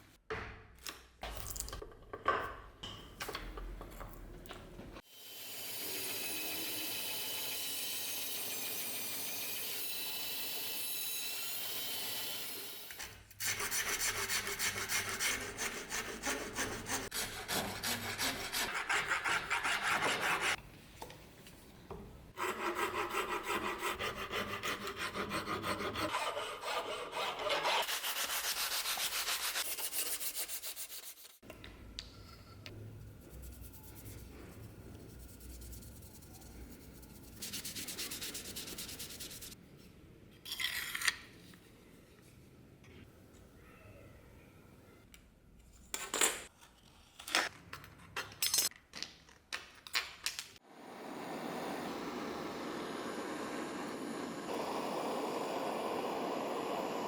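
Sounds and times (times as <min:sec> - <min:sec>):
fast rubbing strokes: 0:22.4 - 0:31.4, 0:35.1 - 0:39.6.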